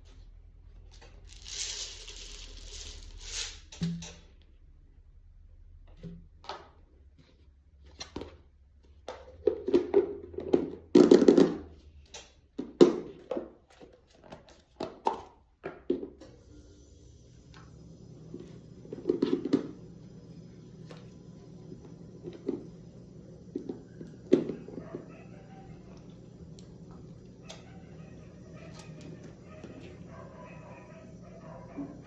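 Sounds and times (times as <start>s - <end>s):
microwave oven humming: 16.2s - 32.0s.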